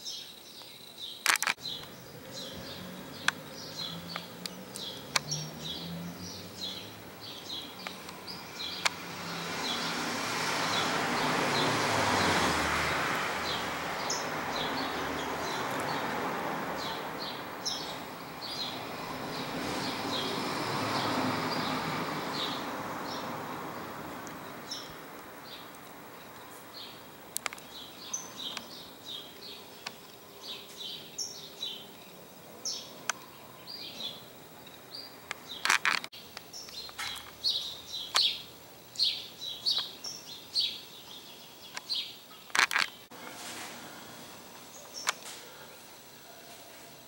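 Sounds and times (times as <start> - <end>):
small birds chirping: 0.0 - 43.2, 43.9 - 47.0
sharp clicks: 1.2 - 1.9.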